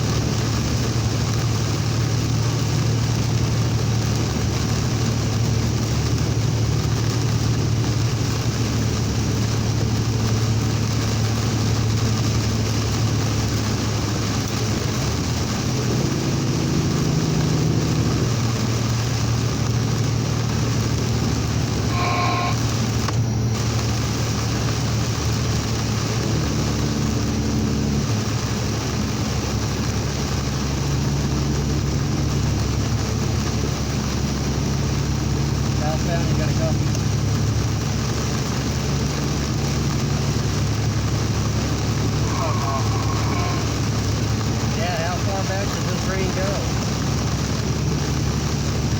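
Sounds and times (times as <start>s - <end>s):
heavy rain: 0.0s - 48.9s
truck engine droning: 0.0s - 48.9s
wind: 0.0s - 48.9s
short electronic beep: 21.9s - 22.6s.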